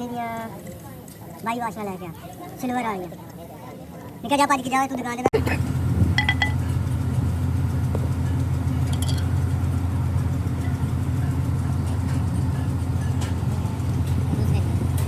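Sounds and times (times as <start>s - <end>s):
engine running steadily: 5.3s - 15.0s
short metallic clink: 8.9s - 9.3s.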